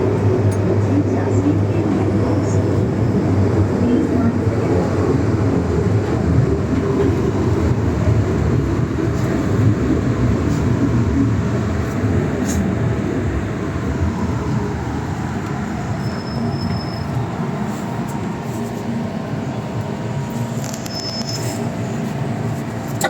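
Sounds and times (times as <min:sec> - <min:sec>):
train wheels rumbling: 0:00.0 - 0:23.0
high-pitched wheel squeals: 0:16.0 - 0:17.2, 0:20.7 - 0:21.7.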